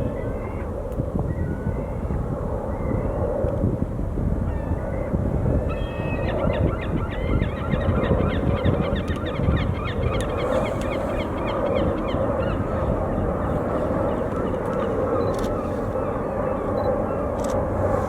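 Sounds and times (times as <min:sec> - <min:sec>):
steady low rumble: 0:09.0 - 0:18.0.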